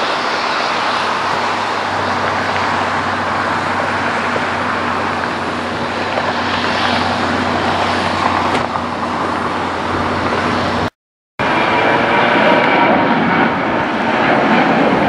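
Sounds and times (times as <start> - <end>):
engine and traffic roar: 0.0 - 15.0.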